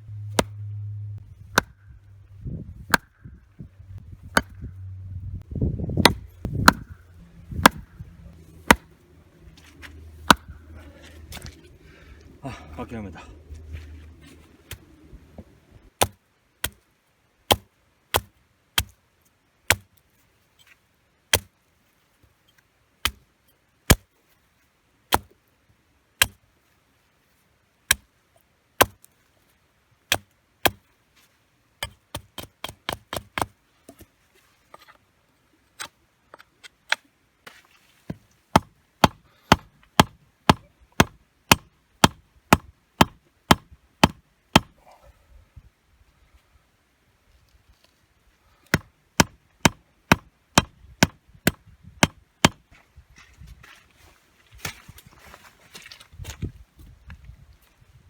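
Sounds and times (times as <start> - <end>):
firewood being chopped: 0.2 - 0.6, 1.4 - 1.9, 2.8 - 3.3, 4.2 - 4.7, 5.9 - 8.0, 8.6 - 9.0, 9.6 - 11.6, 16.0 - 16.8, 17.5 - 19.0, 19.7 - 19.9, 21.3 - 21.5, 25.1 - 25.3, 26.2 - 26.4, 28.8 - 29.1, 30.1 - 30.8, 31.8 - 34.1, 36.9 - 44.8, 48.7 - 52.7.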